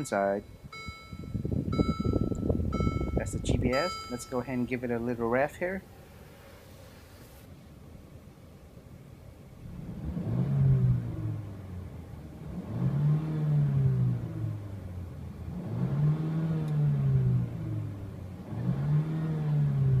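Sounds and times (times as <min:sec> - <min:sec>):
car engine revving: 0:09.6 - 0:20.0.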